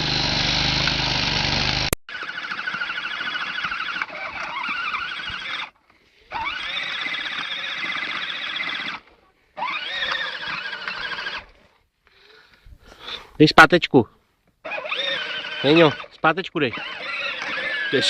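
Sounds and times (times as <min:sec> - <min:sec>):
small electric motor whining: 0:14.6 - 0:18.0.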